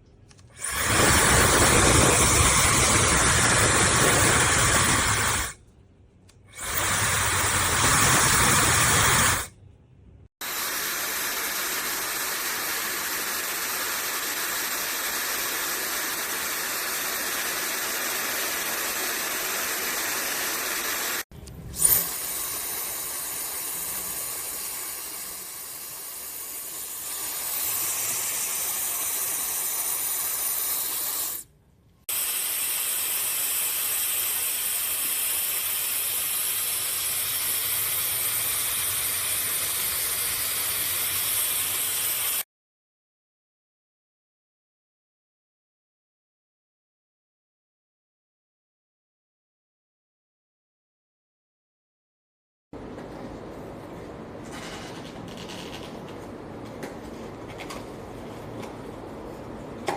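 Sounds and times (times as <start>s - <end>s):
hair dryer blowing air: 0.6s - 5.6s, 6.5s - 9.5s, 10.4s - 31.4s
high motor whine: 0.6s - 5.6s.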